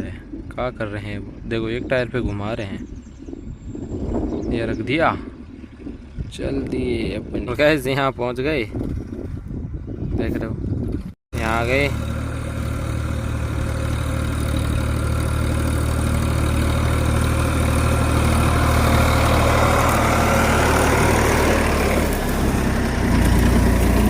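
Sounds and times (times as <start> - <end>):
tractor engine running: 10.8 - 24.0
cultivator mechanical noise: 11.4 - 24.0.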